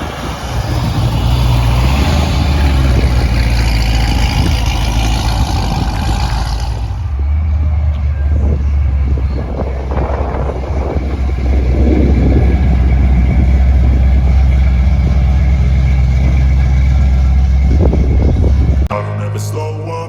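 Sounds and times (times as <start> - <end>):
car engine rumbling: 0.0 - 18.9
guitar music: 18.1 - 20.0.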